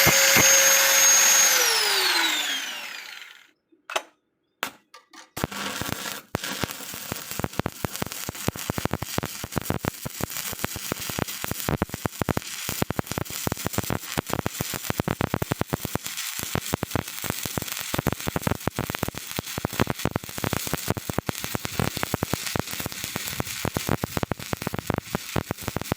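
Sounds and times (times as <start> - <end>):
welding arc crackling: 0.0 - 3.4, 5.4 - 25.9.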